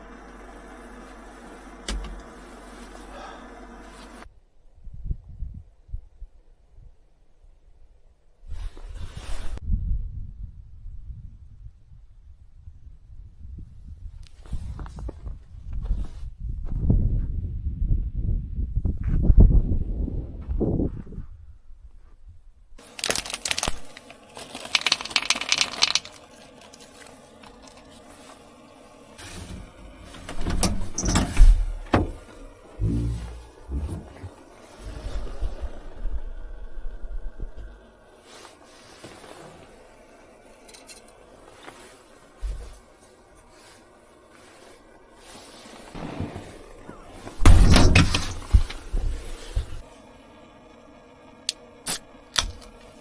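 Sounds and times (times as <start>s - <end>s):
crinkling and rustling: 22.8s - 35.6s, 40.6s - 49.9s
soft low thump: 32.8s - 34.3s.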